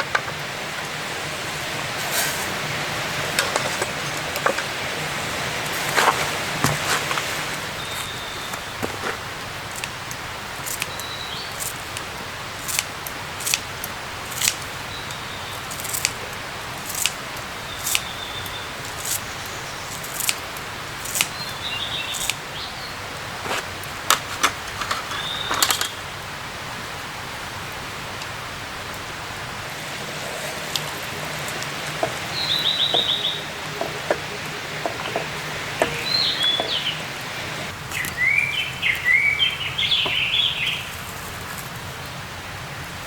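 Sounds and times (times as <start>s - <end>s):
steady hiss: 0.0s - 43.0s
high bird chirps: 7.4s - 9.0s, 30.8s - 40.9s.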